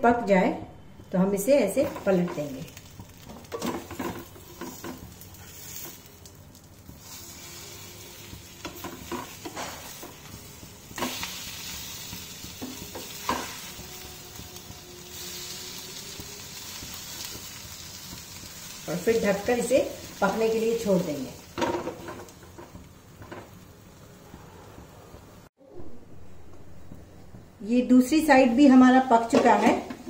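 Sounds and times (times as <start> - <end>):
food sizzling in hot oil: 1.3 - 24.4.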